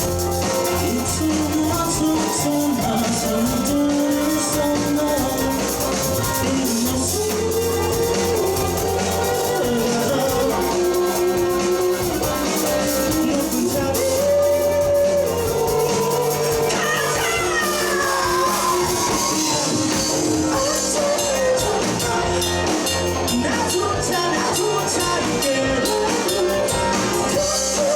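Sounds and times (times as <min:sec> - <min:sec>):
bass guitar: 0:00.0 - 0:27.9
drum kit: 0:00.0 - 0:27.9
electric guitars: 0:00.0 - 0:27.9.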